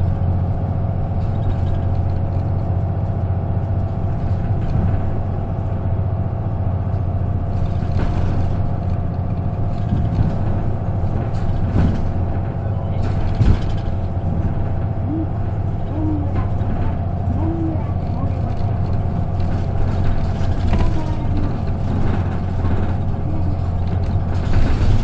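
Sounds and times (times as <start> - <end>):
bus engine drone: 0.0 - 25.0
short knocks and rattles: 7.4 - 25.0.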